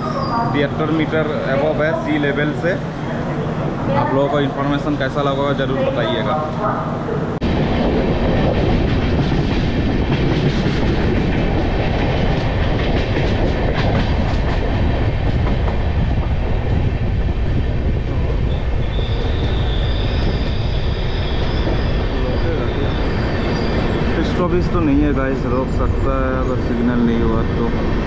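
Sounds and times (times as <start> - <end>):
train wheels rumbling on rails: 0.0 - 28.0
wind noise on microphone: 7.4 - 26.6.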